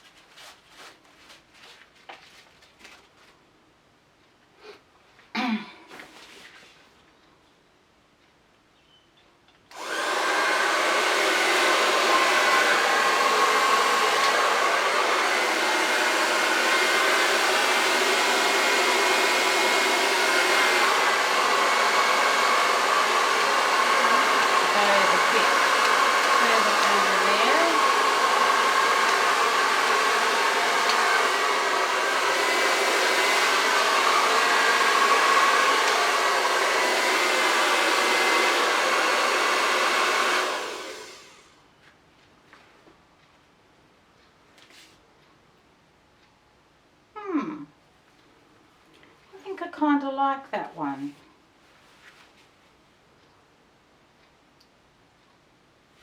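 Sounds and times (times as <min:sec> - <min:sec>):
hair dryer running: 0:09.7 - 0:41.5.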